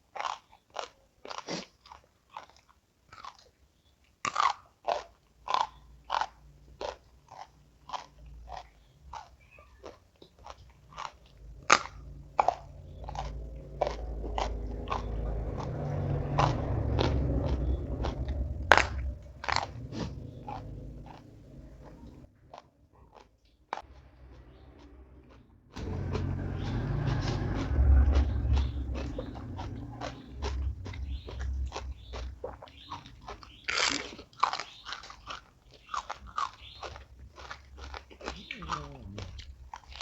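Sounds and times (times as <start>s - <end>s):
chewing crunchy food: 0.0s - 40.0s
low rumble: 10.7s - 22.3s, 23.8s - 34.4s, 38.3s - 39.8s.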